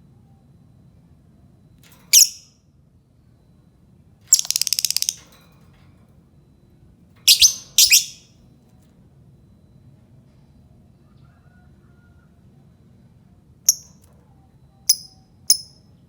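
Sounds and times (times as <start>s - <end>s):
bird chattering trill: 2.1s - 2.4s, 4.3s - 5.2s, 7.3s - 8.3s.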